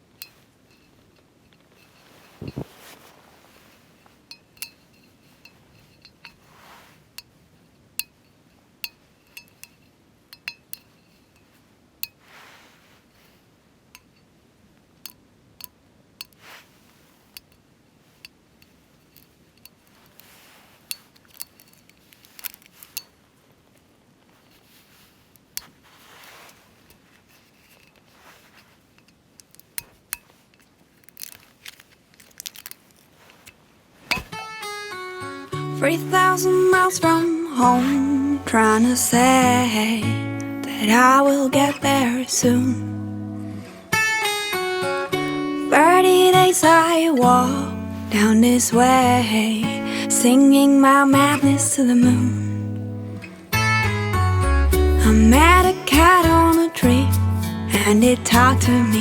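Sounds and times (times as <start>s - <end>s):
soft shuffling: 1.7s - 4.3s, 4.9s - 7.2s, 11.5s - 13.5s, 16.4s - 17.4s, 18.0s - 29.0s, 29.7s - 34.4s, 35.5s - 43.0s.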